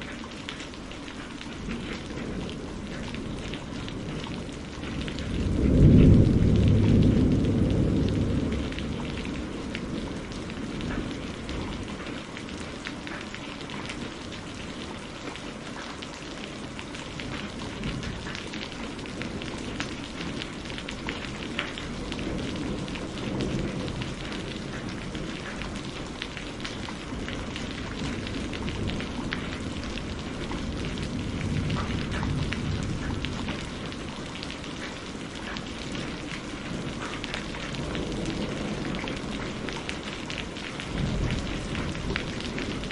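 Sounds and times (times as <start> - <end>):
rain pattering: 0.0 - 42.9
low thunder rumble: 1.6 - 12.4, 16.6 - 42.9.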